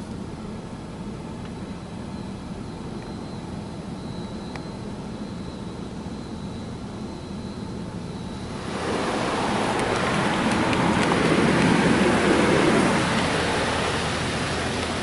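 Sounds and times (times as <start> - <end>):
car wash machinery drone: 0.0 - 15.0
water spraying on car: 8.5 - 15.0.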